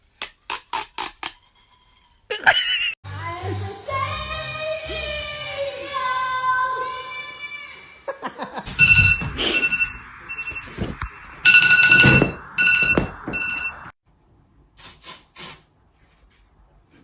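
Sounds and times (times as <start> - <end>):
electronic ringing tone: 8.8 - 13.9
short hisses: 14.8 - 15.7.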